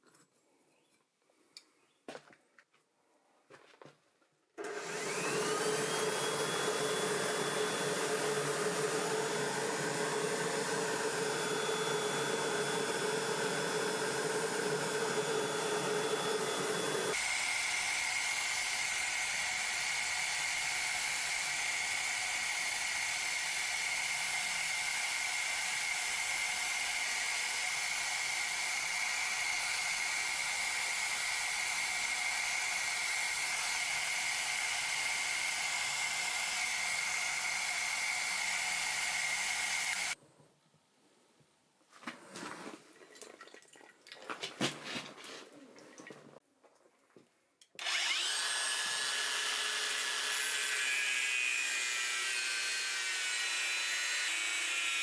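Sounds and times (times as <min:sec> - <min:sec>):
electric blower whirring: 0:04.6 - 0:40.2, 0:47.8 - 0:55.0.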